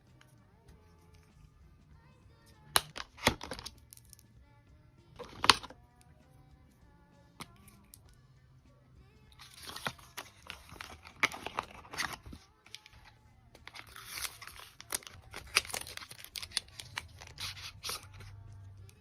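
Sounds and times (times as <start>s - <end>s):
packaging rustling and tearing: 9.4s - 18.3s.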